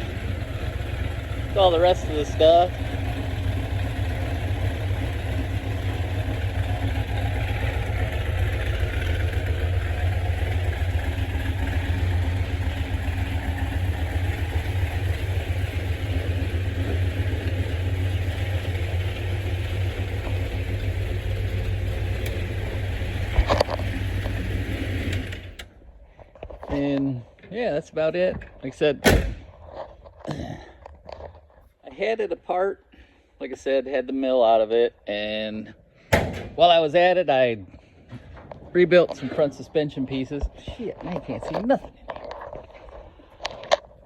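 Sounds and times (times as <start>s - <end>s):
car engine idling: 0.0s - 27.5s, 35.1s - 44.0s
short clunk: 36.1s - 36.6s.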